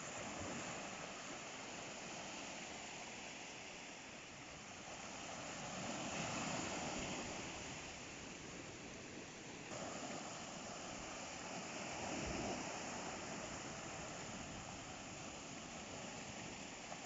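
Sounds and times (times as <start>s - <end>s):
ocean waves breaking on shore: 0.0s - 17.0s.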